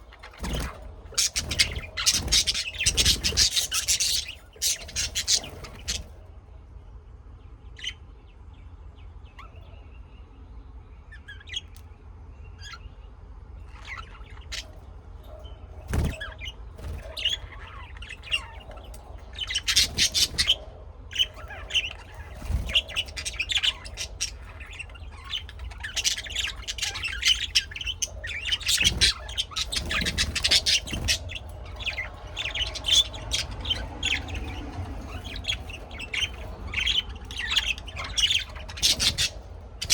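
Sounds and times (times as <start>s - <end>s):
small birds chirping and squawking: 0.0s - 39.9s
steady low hum: 0.0s - 39.9s.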